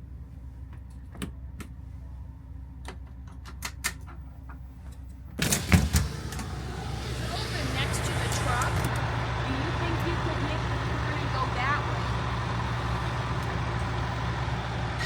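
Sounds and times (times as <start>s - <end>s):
vehicle engine idling: 4.2s - 15.0s.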